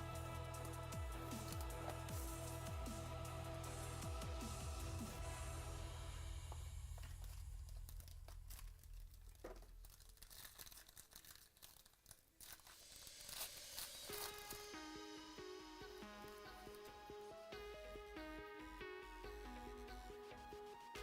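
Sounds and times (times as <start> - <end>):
background music: 0.0 - 8.1, 12.8 - 21.0
packaging tearing and crinkling: 6.8 - 14.8.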